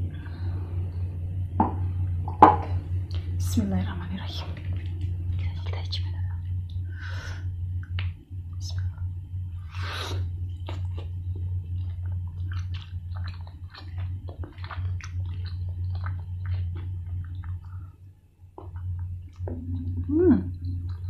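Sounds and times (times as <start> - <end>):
steady low hum: 0.0 - 21.0
crunchy chewing: 9.8 - 21.0.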